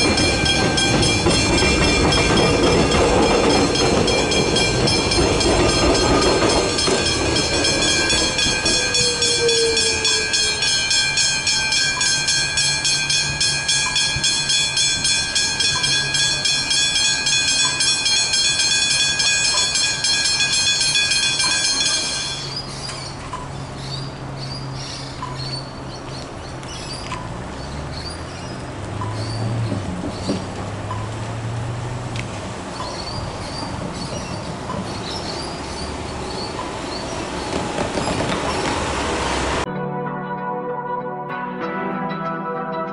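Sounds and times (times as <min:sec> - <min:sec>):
level crossing bells ringing: 0:00.0 - 0:22.7.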